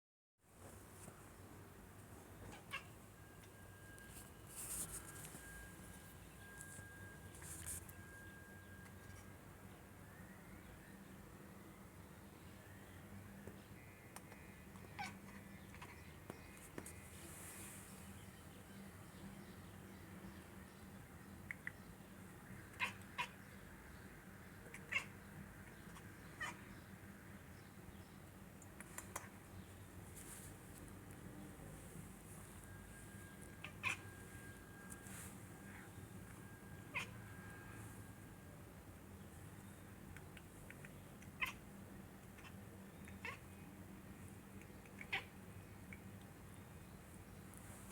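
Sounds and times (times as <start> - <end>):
low steady hum: 0.5 - 47.9
cat mewing: 24.7 - 25.2, 33.6 - 34.1, 36.9 - 37.2, 43.2 - 43.5
faint clicks: 28.6 - 29.3.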